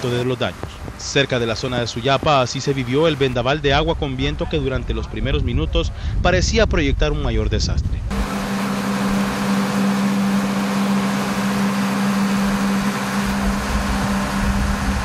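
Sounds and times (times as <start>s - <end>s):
low hum: 7.9s - 15.0s
heavy rain falling: 8.1s - 15.0s.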